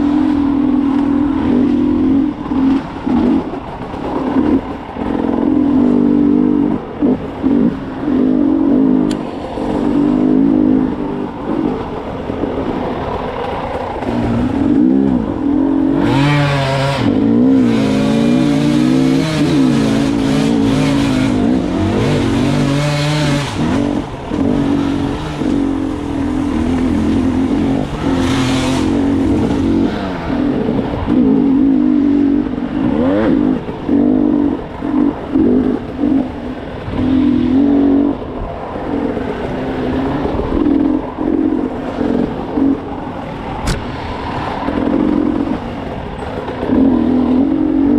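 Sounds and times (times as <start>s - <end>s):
dirt bike engine revving: 14.0s - 38.2s.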